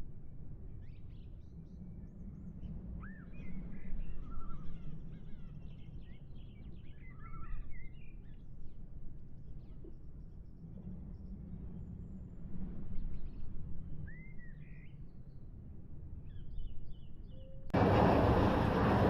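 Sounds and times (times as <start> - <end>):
low background rumble: 0.0 - 19.0
small birds chirping and whistling: 3.0 - 8.5, 14.0 - 15.1, 16.2 - 17.6.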